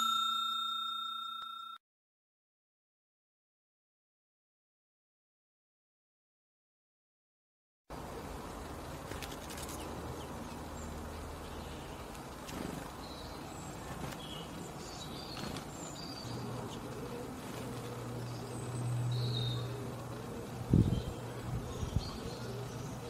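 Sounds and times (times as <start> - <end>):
small birds chirping: 8.0 - 23.0.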